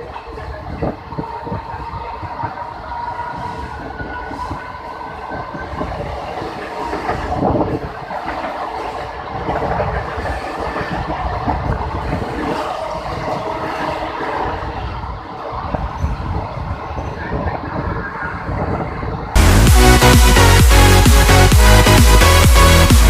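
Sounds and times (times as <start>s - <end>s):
train rumbling on rails: 0.0s - 23.0s
track clickety-clack: 5.5s - 14.8s.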